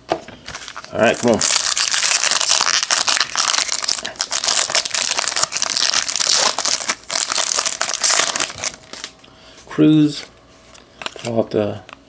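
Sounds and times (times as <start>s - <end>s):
wrapper tearing and crinkling: 0.5s - 9.1s.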